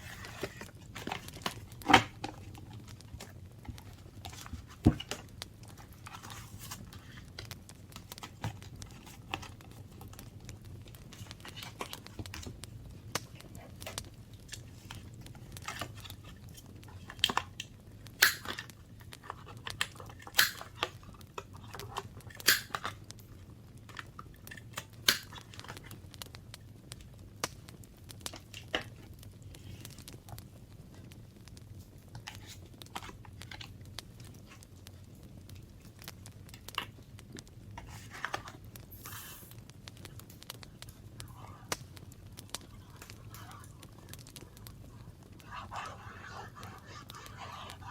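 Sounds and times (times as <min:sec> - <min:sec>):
paper rustling: 0:00.0 - 0:02.6.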